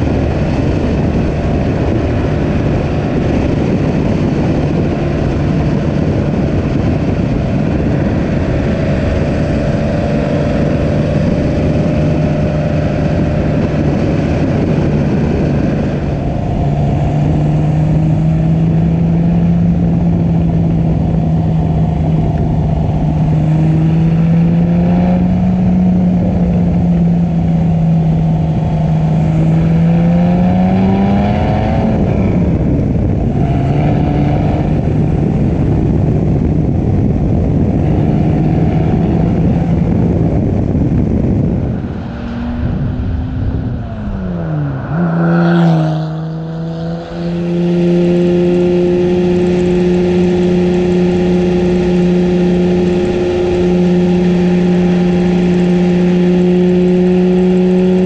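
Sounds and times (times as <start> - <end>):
car engine under way: 0.0 - 58.0
road noise: 0.0 - 58.0
wind rushing: 0.0 - 58.0.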